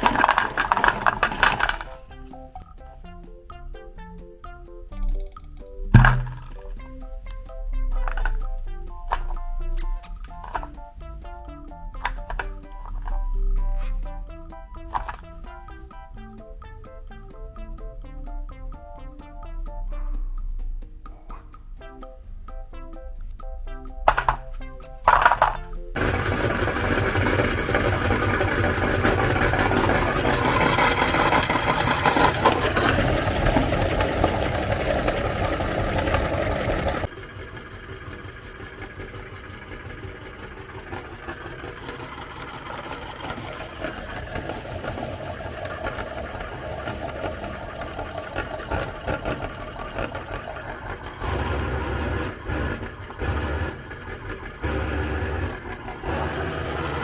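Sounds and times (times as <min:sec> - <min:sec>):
electric meat grinder running: 0:00.0 - 0:02.0, 0:26.0 - 0:57.0.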